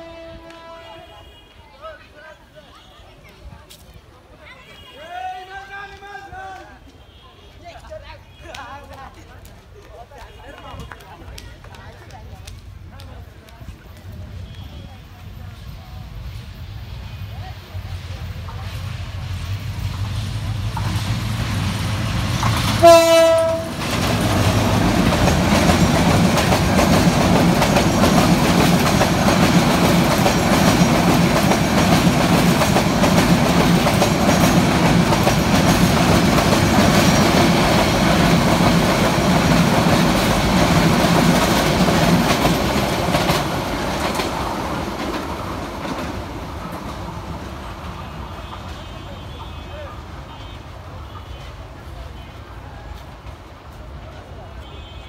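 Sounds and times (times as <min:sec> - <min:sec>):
train horn blast: 0:00.0 - 0:01.6, 0:22.7 - 0:24.0
train coaches rumbling past: 0:00.0 - 0:07.0, 0:07.6 - 0:55.0
wheels clacking over rail joints: 0:19.7 - 0:48.8.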